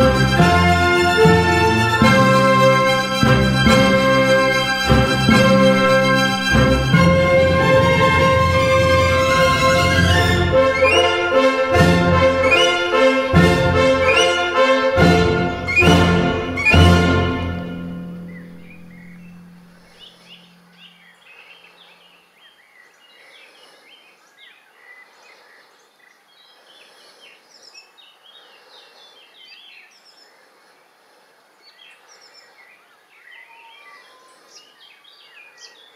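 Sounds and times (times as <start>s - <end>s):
orchestral music low note: 0.0s - 21.0s
small birds chirping: 18.1s - 35.9s.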